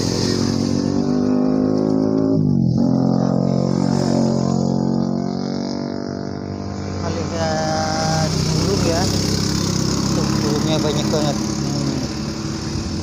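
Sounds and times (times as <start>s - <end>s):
motorcycle engine idling: 6.7s - 13.0s.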